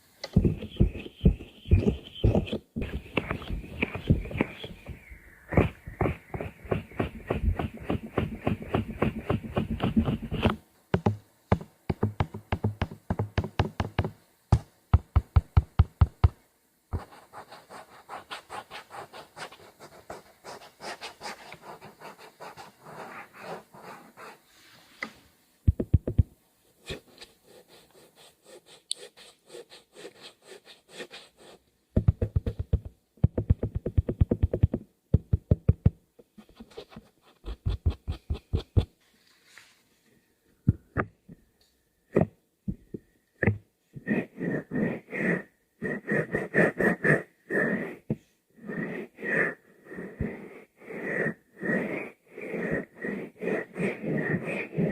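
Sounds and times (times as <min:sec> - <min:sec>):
soft scratching strokes: 0:00.2 - 0:10.6, 0:16.9 - 0:25.4, 0:26.1 - 0:31.6, 0:36.2 - 0:40.2, 0:48.6 - 0:54.9
rapid close-miked tapping: 0:00.2 - 0:17.1, 0:25.7 - 0:26.3, 0:32.0 - 0:38.9.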